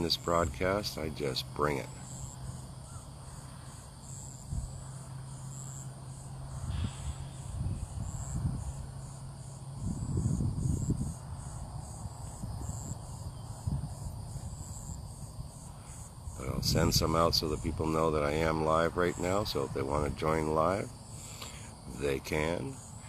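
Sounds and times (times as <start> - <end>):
insects chirping: 0.0 - 23.0
low rumbles on microphone: 6.6 - 15.5.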